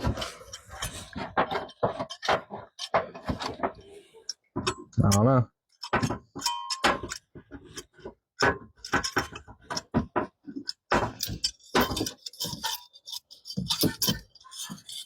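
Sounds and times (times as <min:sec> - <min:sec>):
metal tools clinking: 0:11.2 - 0:15.0.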